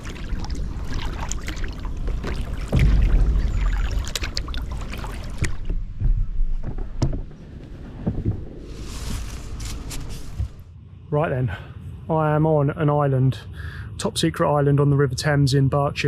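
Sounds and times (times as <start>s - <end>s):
paddle splashes: 0.0s - 5.8s
water slapping a hull: 0.0s - 7.3s
wind rumbling on microphone: 0.0s - 12.1s.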